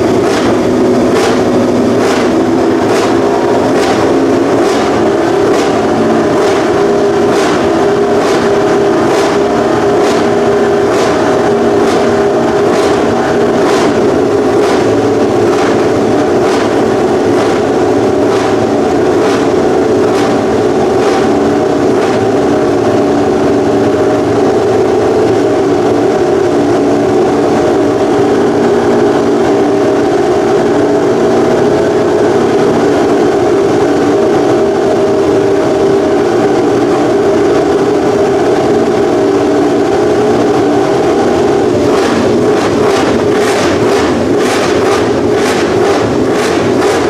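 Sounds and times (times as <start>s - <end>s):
sharp cracks: 0.0s - 23.1s, 40.6s - 47.0s
motorcycle engine idling: 0.0s - 47.0s.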